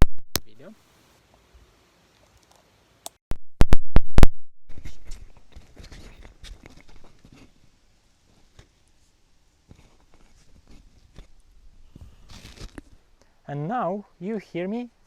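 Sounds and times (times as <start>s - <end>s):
rustling and scraping clicks: 12.3s - 13.0s.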